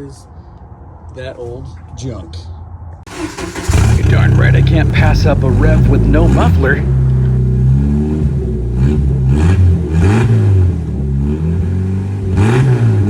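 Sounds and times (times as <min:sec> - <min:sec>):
car engine revving without muffler: 0:03.1 - 0:13.0.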